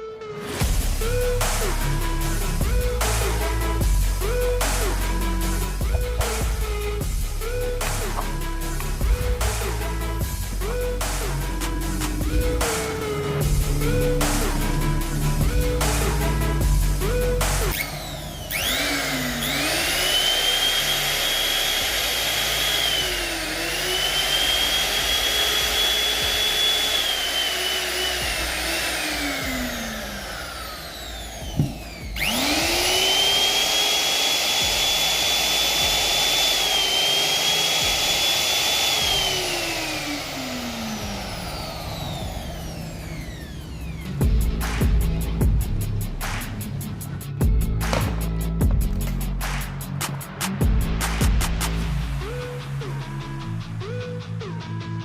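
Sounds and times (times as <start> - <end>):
electric router motor whining: 3.0 - 44.2.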